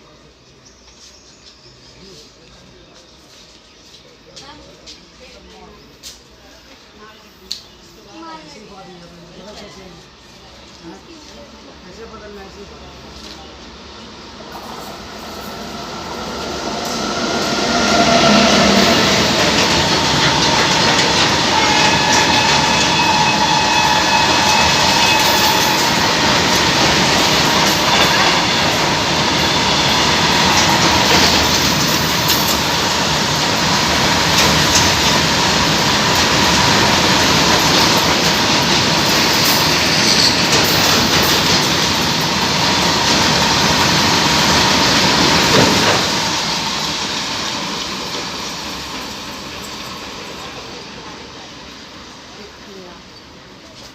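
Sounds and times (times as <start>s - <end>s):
freight train wagons rattling: 14.5s - 51.4s
wheel squeal: 20.5s - 26.2s.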